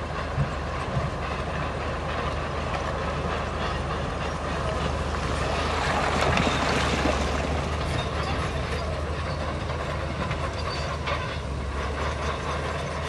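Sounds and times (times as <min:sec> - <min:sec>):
diesel engine under load: 0:00.0 - 0:13.0
steel tracks clattering and squealing: 0:00.0 - 0:13.0.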